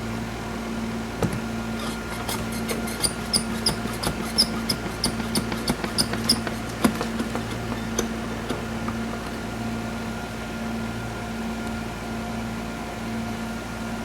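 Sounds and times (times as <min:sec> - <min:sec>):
clicks and squeaks from running gear: 0:01.8 - 0:09.5.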